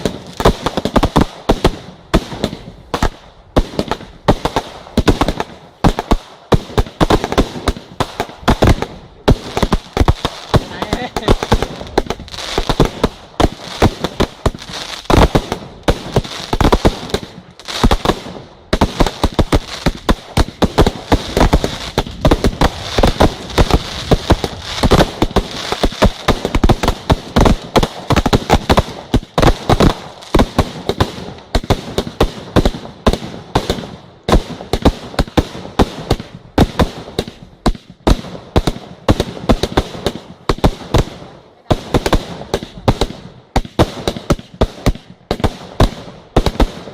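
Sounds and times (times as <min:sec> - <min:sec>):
fireworks bangs: 0:00.0 - 0:46.9
fireworks crackling: 0:00.0 - 0:46.9.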